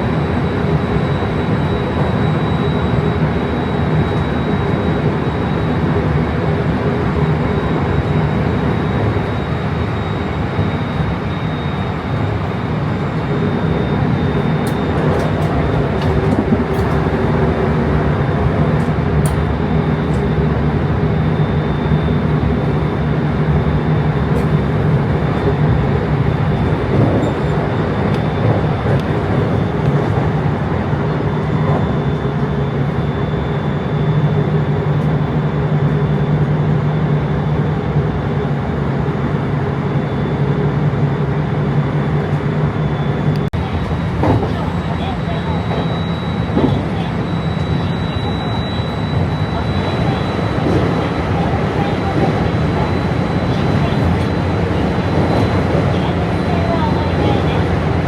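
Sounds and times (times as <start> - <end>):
train rumbling: 0.0 - 58.0.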